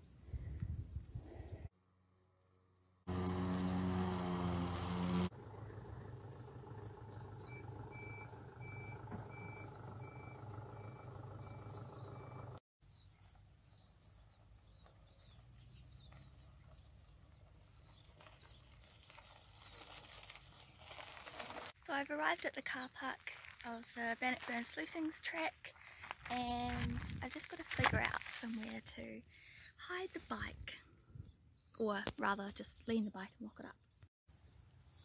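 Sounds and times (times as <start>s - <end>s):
loud low hum: 3.1s - 12.6s
small birds chirping: 5.3s - 20.4s, 31.2s - 32.0s.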